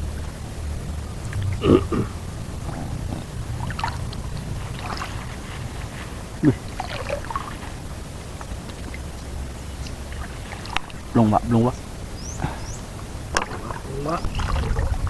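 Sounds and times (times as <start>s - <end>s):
wind on microphone: 0.0s - 6.8s, 12.4s - 15.0s
water sloshing and splashing: 0.0s - 12.0s, 13.0s - 15.0s.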